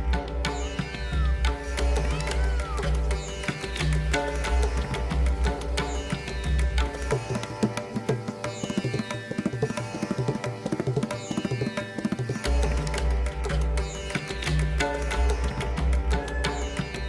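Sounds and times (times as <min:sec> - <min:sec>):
plucked strings: 0:00.0 - 0:17.0
fast hand-drum strokes: 0:01.9 - 0:13.8.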